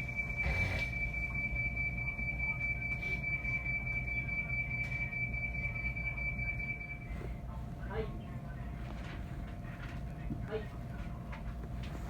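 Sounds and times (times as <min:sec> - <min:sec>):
high-pitched alarm tone: 0:00.0 - 0:07.1.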